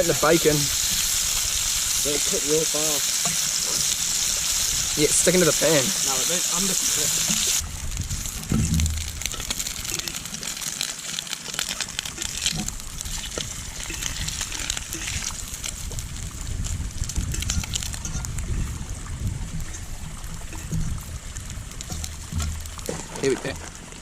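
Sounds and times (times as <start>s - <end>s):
bacon sizzling in a pan: 0.0s - 22.9s
wind gusts on microphone: 7.5s - 9.3s, 12.5s - 22.4s.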